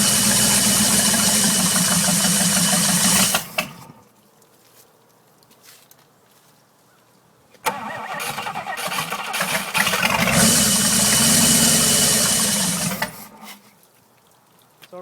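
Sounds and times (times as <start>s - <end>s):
car engine cranking and running: 0.0s - 4.0s, 7.7s - 13.5s.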